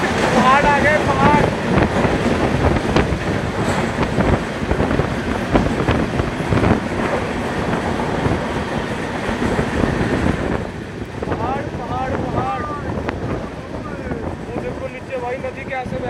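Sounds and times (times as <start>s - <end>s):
train wheels rumbling and clattering: 0.0s - 16.0s.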